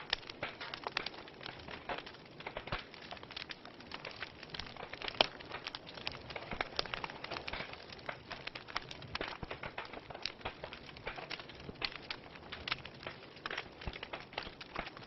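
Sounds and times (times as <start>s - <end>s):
fire popping and snapping: 0.0s - 15.0s
wood fire crackling: 0.0s - 15.0s.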